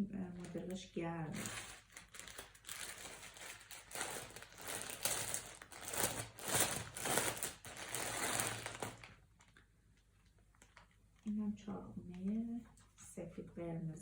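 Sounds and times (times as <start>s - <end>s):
plastic packaging crinkling: 0.3s - 11.3s.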